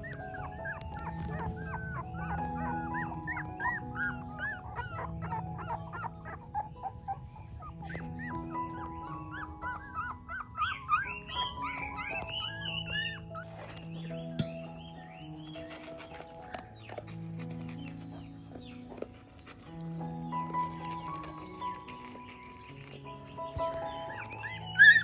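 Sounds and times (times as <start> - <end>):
puppies whimpering and squealing: 0.0 - 25.0
soft background music: 0.0 - 25.0.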